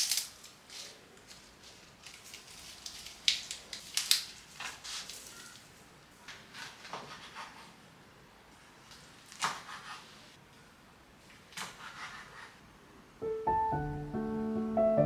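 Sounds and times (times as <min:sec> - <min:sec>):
soft piano music: 0:13.2 - 0:15.0.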